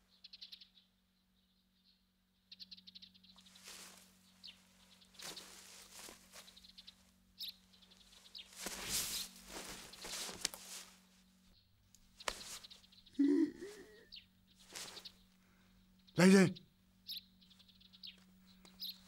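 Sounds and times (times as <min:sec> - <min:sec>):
faint high bird chirps: 0:00.0 - 0:10.4, 0:11.6 - 0:19.0
soft rustles: 0:03.4 - 0:11.5, 0:12.1 - 0:12.9, 0:14.6 - 0:15.3.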